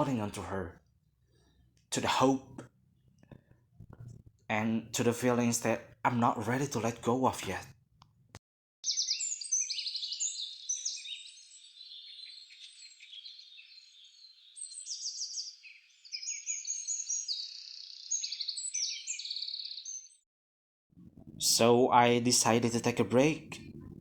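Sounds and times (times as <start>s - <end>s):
birds chirping and trilling: 8.8s - 20.2s.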